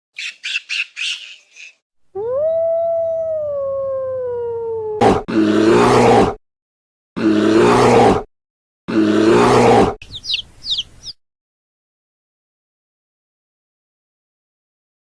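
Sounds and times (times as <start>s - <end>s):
dog howling: 2.2s - 5.0s
harsh rasping animal call: 8.9s - 10.3s
short high-pitched calls: 10.0s - 11.2s.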